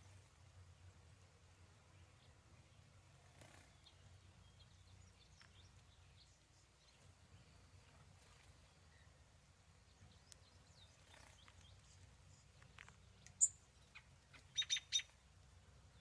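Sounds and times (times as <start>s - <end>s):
faint high chirps: 10.1s - 15.2s.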